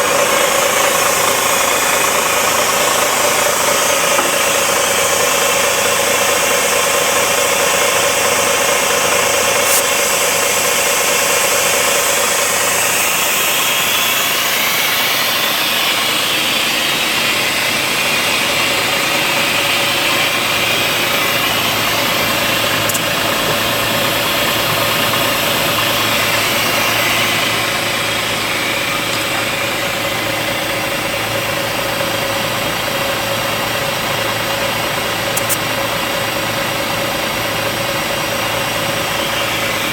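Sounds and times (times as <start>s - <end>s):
diesel truck engine idling: 0.0s - 39.9s
air venting hiss: 9.4s - 15.7s.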